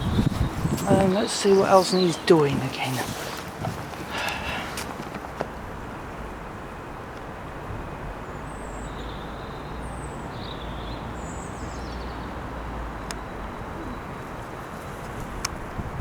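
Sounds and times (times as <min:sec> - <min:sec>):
wind on microphone: 0:00.0 - 0:06.4, 0:13.6 - 0:16.0.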